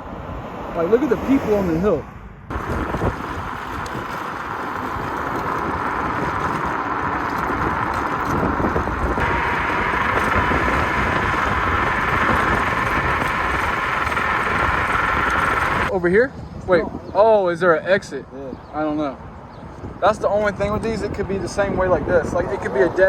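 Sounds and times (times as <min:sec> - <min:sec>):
road noise: 0:00.0 - 0:23.0
wind rushing over microphone: 0:00.0 - 0:23.0
faint steady whine: 0:02.5 - 0:15.9.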